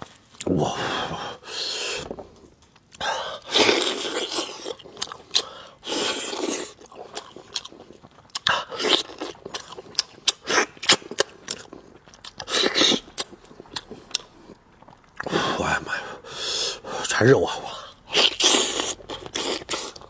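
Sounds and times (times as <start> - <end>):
chewing and gnawing meat: 2.6 - 15.3, 18.1 - 20.0.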